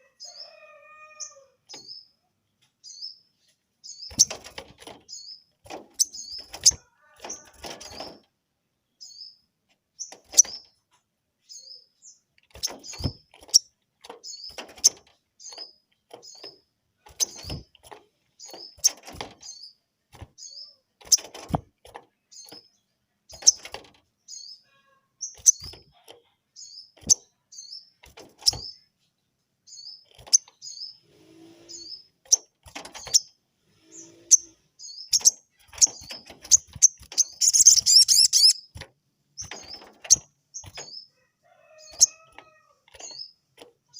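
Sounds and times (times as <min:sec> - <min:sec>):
bird chirping: 0:00.0 - 0:08.2, 0:08.8 - 0:21.4, 0:22.1 - 0:43.9.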